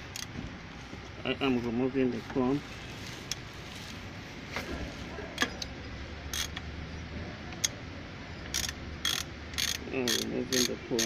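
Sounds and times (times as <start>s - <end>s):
metallic clicks of hand tools: 6.3s - 6.6s, 8.4s - 11.0s.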